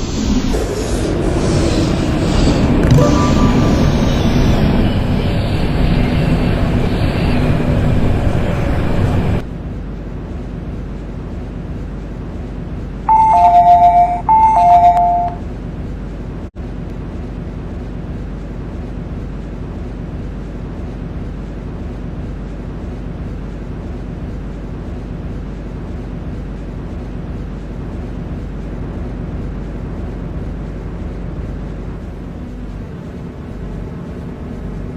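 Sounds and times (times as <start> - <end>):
stopped train humming: 0.0 - 9.4, 13.1 - 15.9
train rumbling: 0.0 - 34.9
two-note train door chime: 2.8 - 5.0, 13.1 - 15.4.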